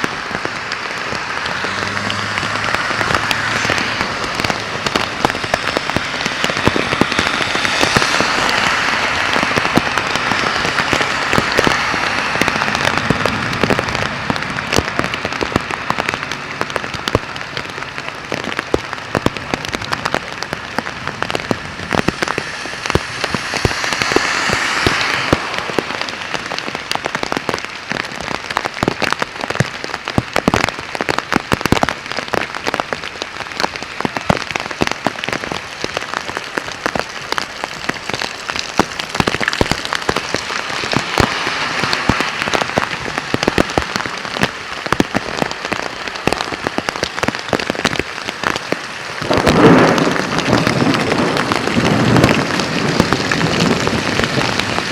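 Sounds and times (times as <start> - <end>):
heavy rain hissing: 0.0 - 54.9
raindrops crackling close: 0.0 - 54.9.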